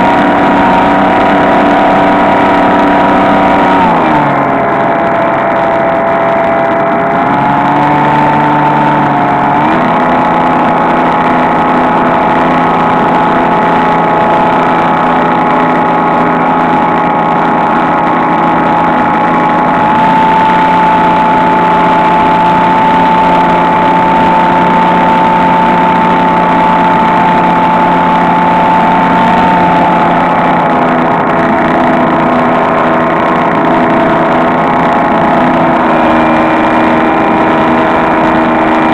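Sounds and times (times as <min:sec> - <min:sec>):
electric motor and propeller whine: 0:00.0 - 0:38.9.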